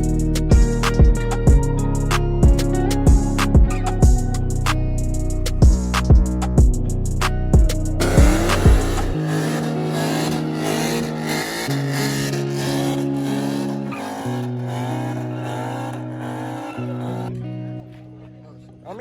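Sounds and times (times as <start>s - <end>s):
car engine at high revs: 8.0s - 17.3s
tyre squeal: 8.0s - 17.3s.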